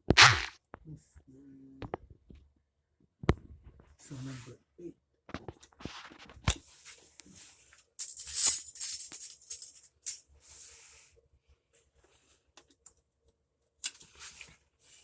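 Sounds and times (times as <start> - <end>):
metal tools clinking and rattling: 8.0 - 10.2.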